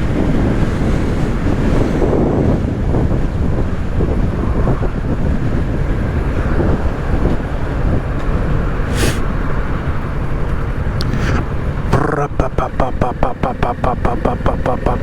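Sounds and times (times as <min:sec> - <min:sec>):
wind rushing over microphone: 0:00.0 - 0:12.0
road noise: 0:05.4 - 0:15.0
brief hiss: 0:08.9 - 0:09.2.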